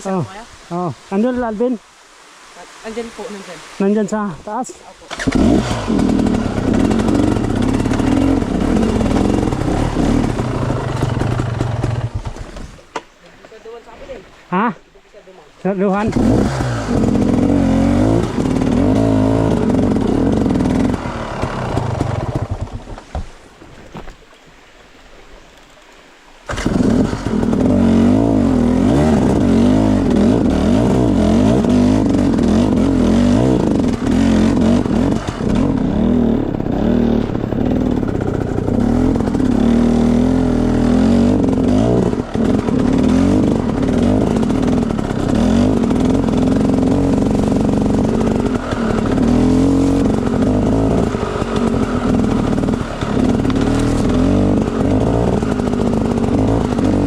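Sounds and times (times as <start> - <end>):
dirt bike engine revving: 5.1 - 12.8, 15.9 - 22.8, 26.5 - 57.0.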